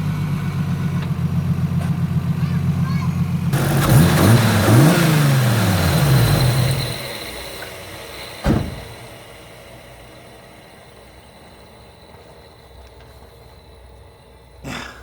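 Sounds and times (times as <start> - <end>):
car engine revving: 0.0 - 13.5
sharp thump: 8.4 - 9.2.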